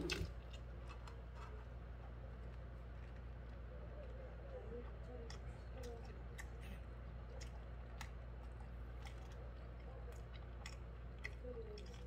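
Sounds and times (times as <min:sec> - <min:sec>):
person chewing with wet clicks: 0:00.0 - 0:12.0
steady low hum: 0:00.0 - 0:12.0.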